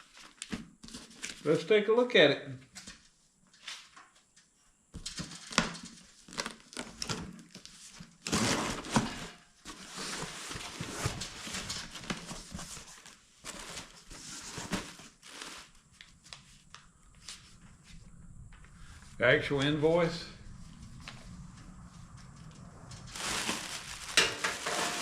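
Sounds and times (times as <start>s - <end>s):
packing material crinkling: 5.4s - 17.5s, 23.1s - 25.0s.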